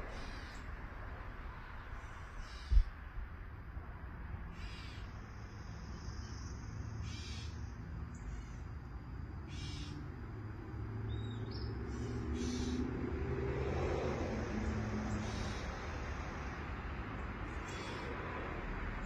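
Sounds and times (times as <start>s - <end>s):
bird harsh call: 0.0s - 0.6s, 2.3s - 2.9s, 4.6s - 5.1s, 7.0s - 7.6s, 9.5s - 10.0s, 11.9s - 12.9s, 17.6s - 18.2s
low vehicle rumble: 5.3s - 19.0s.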